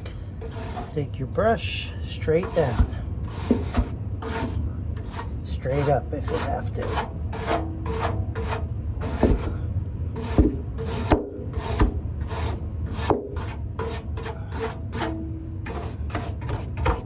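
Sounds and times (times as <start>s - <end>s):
brush scrubbing metal fins: 0.0s - 9.6s, 10.2s - 17.0s
steady low hum: 0.0s - 17.0s.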